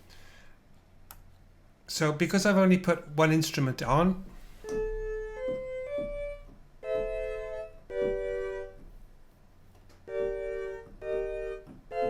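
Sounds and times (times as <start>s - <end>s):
organ-like sampled chords: 10.1s - 12.0s.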